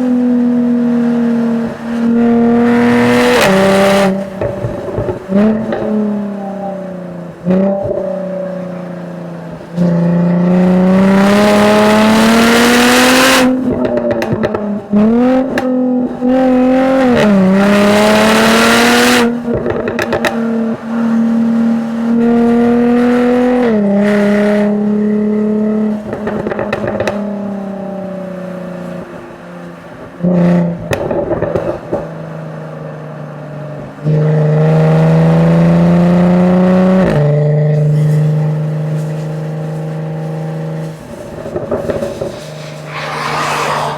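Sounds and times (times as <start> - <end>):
car engine accelerating hard: 0.0 - 43.9
exhaust cracks on overrun: 4.1 - 6.9, 13.5 - 16.0, 19.3 - 20.7, 25.9 - 27.5, 30.8 - 32.3, 37.1 - 43.9.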